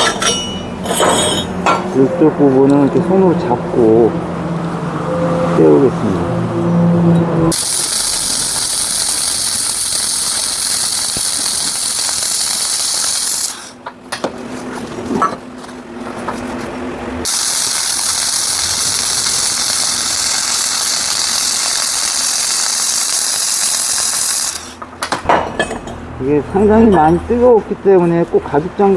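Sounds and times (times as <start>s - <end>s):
arc welding hiss: 7.5s - 13.8s, 17.2s - 24.8s.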